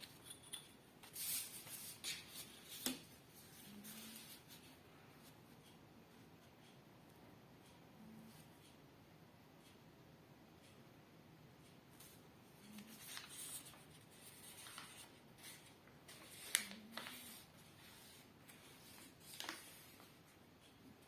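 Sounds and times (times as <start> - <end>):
paper rustling and creasing: 12.7 - 20.2.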